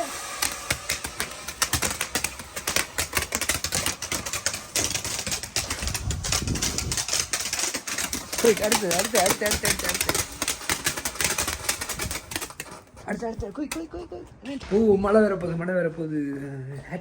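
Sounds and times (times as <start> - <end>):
fireworks crackling: 0.0 - 12.9.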